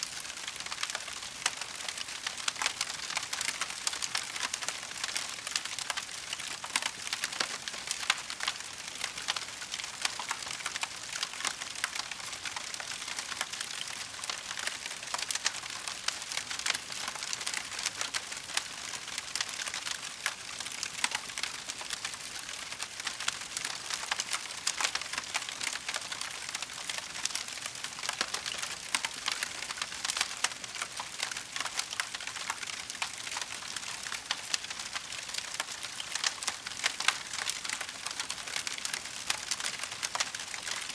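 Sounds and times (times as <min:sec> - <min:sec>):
wood fire crackling: 0:00.1 - 0:40.9.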